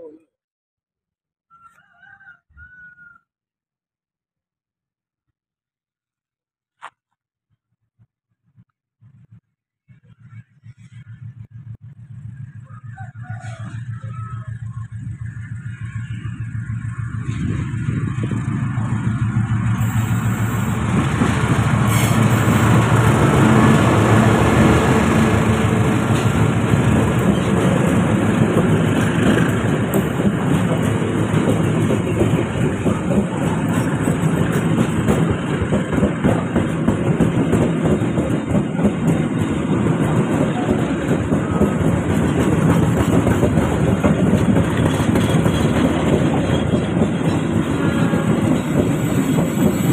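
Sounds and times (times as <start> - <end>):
train wheels clattering: 19.4 - 49.9.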